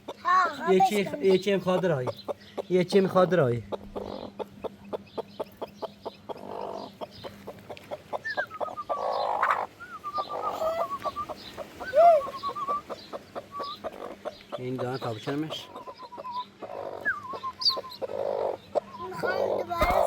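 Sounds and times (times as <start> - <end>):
chickens clucking and calling: 0.0 - 20.0.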